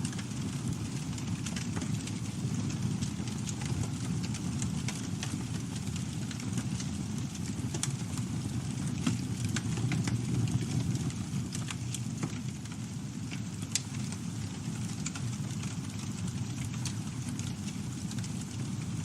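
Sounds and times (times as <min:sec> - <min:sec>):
low rumble of flames: 0:00.0 - 0:19.0
wood crackling and popping: 0:00.0 - 0:19.0.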